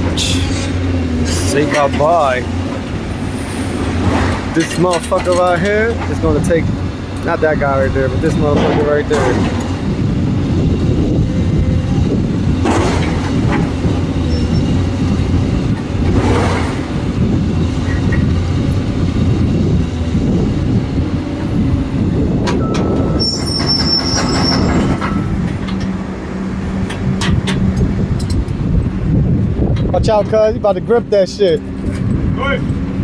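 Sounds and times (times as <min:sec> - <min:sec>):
heavy vehicle rumbling: 0:00.0 - 0:33.0
high metallic squeal: 0:22.6 - 0:25.4.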